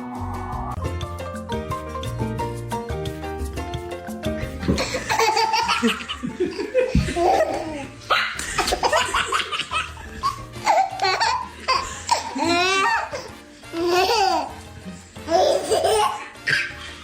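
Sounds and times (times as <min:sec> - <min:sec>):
background music: 0:00.0 - 0:17.0
baby laughing and squealing: 0:05.0 - 0:14.7, 0:15.3 - 0:17.0.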